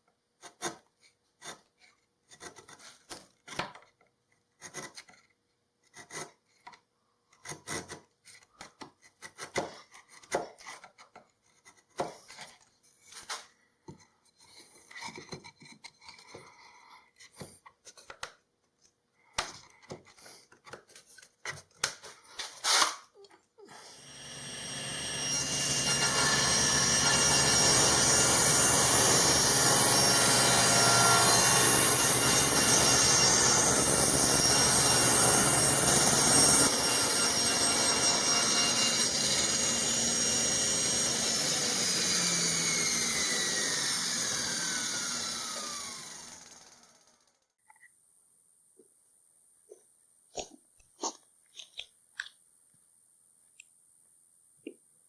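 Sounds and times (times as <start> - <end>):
electric motor whining: 41.4 - 47.0.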